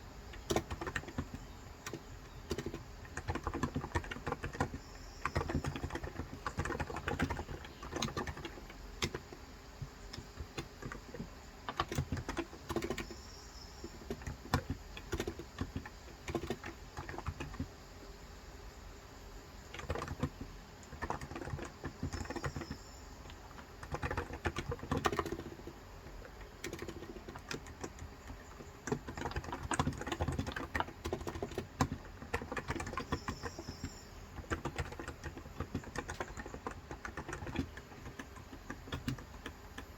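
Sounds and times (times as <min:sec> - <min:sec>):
fast typing on keyboard: 0:00.3 - 0:17.8, 0:19.6 - 0:39.9
faint bird chirps: 0:03.4 - 0:11.6, 0:12.2 - 0:20.4, 0:21.0 - 0:25.6, 0:32.5 - 0:38.3.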